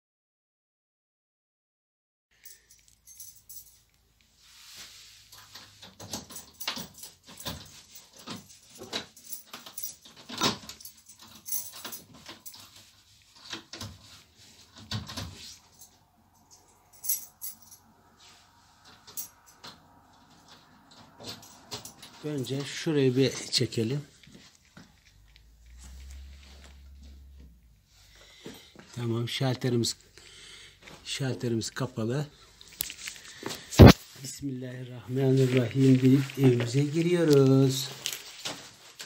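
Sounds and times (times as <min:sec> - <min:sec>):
clicks clinks and rustles: 0:02.4 - 0:04.2, 0:05.3 - 0:27.7, 0:32.6 - 0:34.3, 0:35.0 - 0:39.0.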